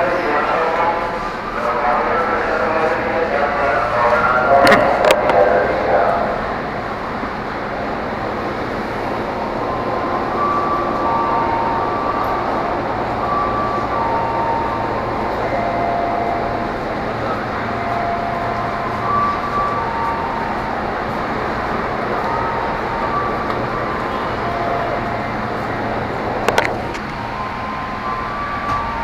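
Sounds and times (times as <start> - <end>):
electric train rail noise: 0.0 - 29.0
train whining tones: 0.0 - 29.0.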